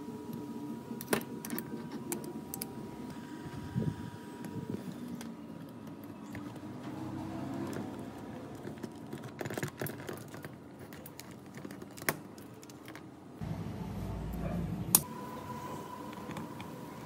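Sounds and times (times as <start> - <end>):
low hum: 13.4 - 17.0.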